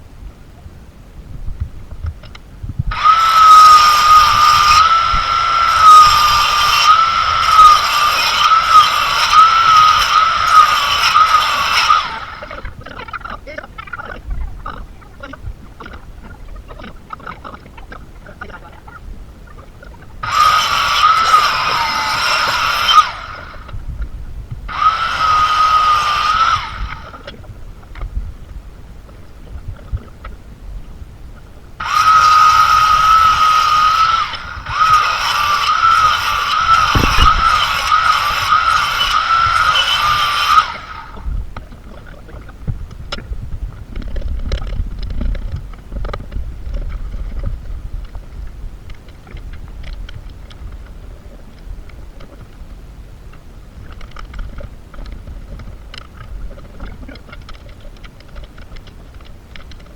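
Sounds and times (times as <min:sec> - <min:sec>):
power tool whining: 0:02.3 - 0:13.2, 0:20.2 - 0:24.0, 0:24.6 - 0:28.0, 0:31.8 - 0:41.9.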